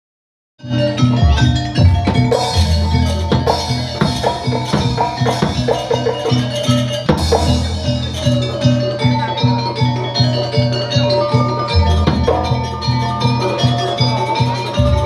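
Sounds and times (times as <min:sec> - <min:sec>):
music with drums and bass: 0:00.6 - 0:15.0.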